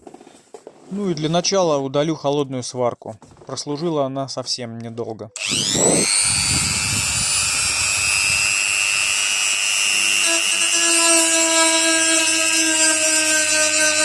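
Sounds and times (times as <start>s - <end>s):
power tool grinding metal: 5.4s - 14.0s.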